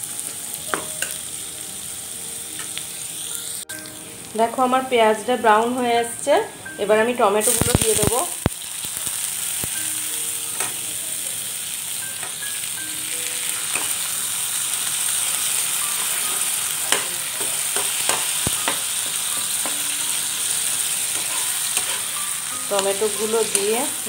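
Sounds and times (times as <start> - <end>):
vegetables sizzling in oil: 0.0 - 24.0
spatula stirring and scraping: 21.1 - 22.2.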